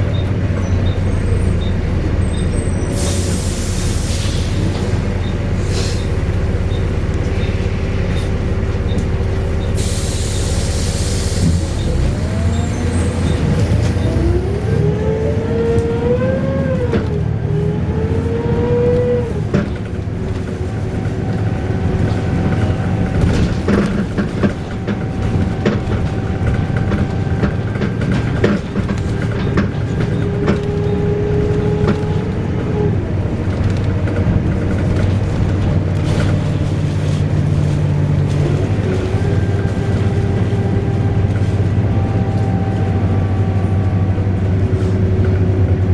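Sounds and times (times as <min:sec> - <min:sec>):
bus wailing whine: 0:00.0 - 0:45.9
diesel engine rumble: 0:00.0 - 0:45.9.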